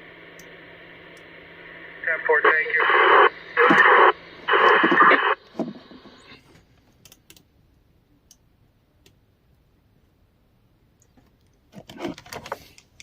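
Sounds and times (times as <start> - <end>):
steady low hum: 0.0 - 11.7
radio static bursts: 1.6 - 6.4.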